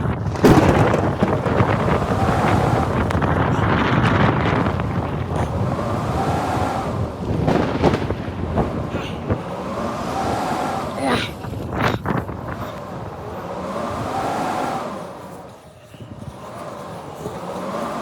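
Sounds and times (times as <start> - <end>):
blizzard wind gusting: 0.0 - 18.0
pitched wind whistle: 0.0 - 18.0.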